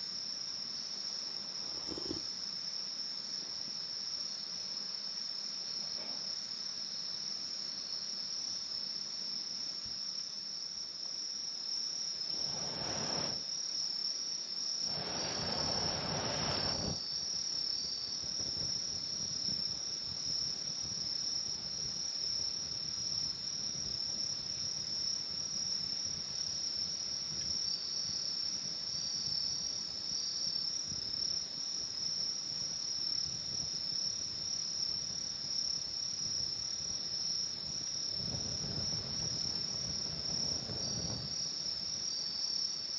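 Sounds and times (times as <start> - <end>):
crickets trilling: 0.0 - 42.9
faint insect call: 0.0 - 42.9
rushing noise: 14.9 - 17.0.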